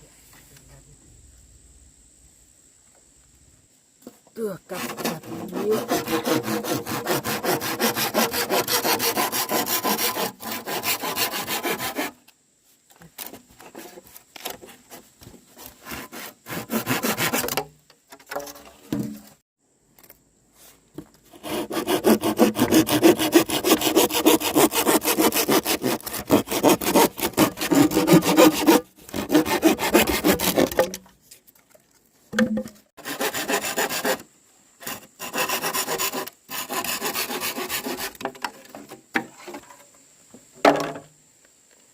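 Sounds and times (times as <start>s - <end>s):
saw cutting through wood: 4.7s - 12.2s, 15.6s - 17.6s, 21.3s - 30.9s, 33.0s - 38.2s.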